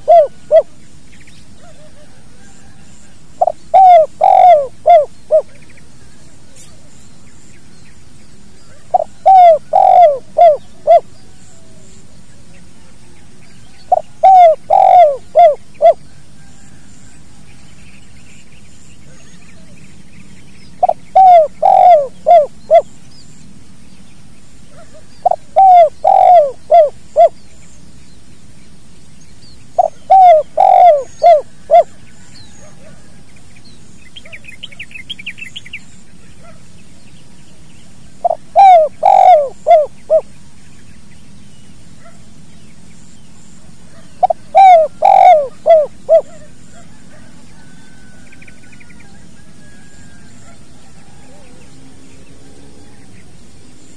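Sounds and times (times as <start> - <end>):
dove cooing: 0.0 - 0.8, 1.6 - 7.0, 8.6 - 12.1, 12.8 - 16.9, 20.8 - 23.0, 24.7 - 27.4, 29.8 - 33.3, 38.1 - 40.3, 43.8 - 53.3
small bird chirping: 17.6 - 53.9.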